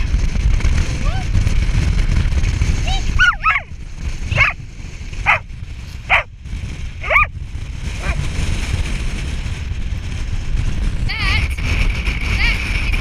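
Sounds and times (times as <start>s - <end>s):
wind rumbling on microphone: 0.0s - 13.0s
dog yipping: 3.2s - 3.7s, 4.3s - 4.6s, 6.1s - 6.3s, 7.0s - 7.3s, 8.0s - 8.2s.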